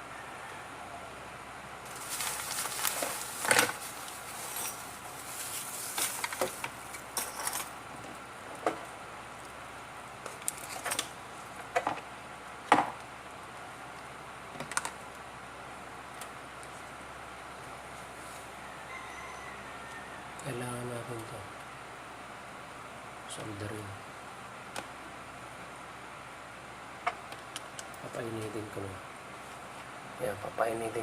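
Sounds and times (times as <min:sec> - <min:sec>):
rustling of small parts: 0:01.9 - 0:07.8.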